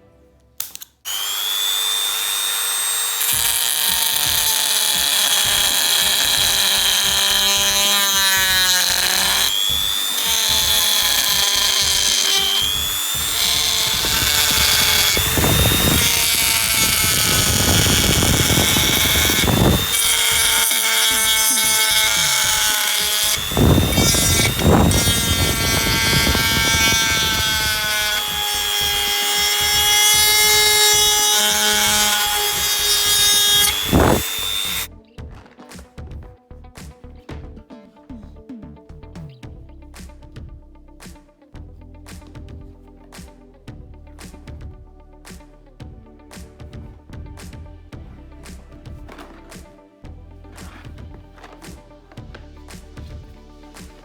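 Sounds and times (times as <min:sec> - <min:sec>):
die grinder whining: 0:00.6 - 0:34.9
harsh grinding noise: 0:00.6 - 0:34.9.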